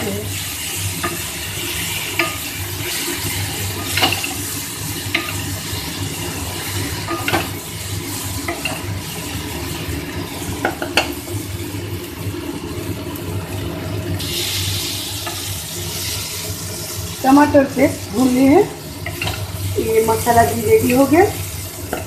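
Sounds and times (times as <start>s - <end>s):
masala sizzling in oil: 0.0s - 22.0s
spatula scraping pan: 0.2s - 11.2s.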